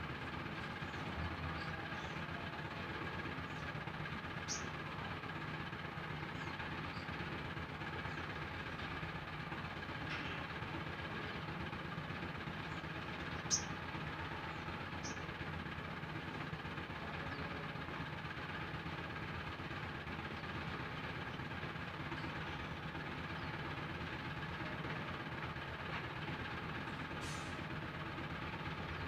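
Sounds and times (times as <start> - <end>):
low background hum: 0.0 - 29.0
high bird chirps: 4.4 - 4.7, 13.4 - 13.8.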